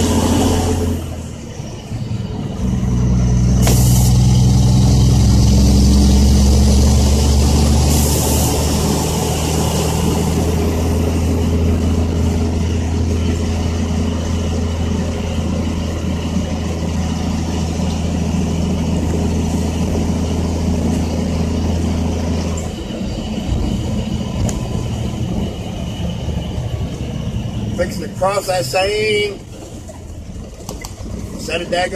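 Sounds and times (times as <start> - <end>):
dump truck diesel engine running: 0.0 - 31.9
short hiss: 3.6 - 4.2.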